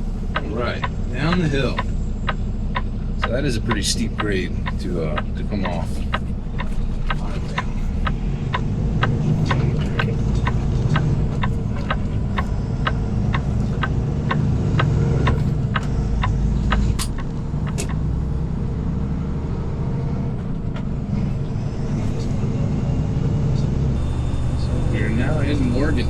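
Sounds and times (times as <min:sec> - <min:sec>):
diesel truck engine droning: 0:00.0 - 0:26.0
regular ticking: 0:00.0 - 0:26.0
sharp clicks: 0:00.3 - 0:18.2.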